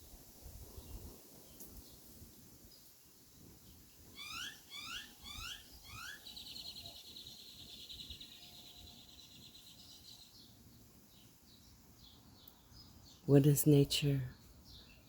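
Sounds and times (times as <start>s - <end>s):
bird whistling and trilling: 4.2s - 7.0s.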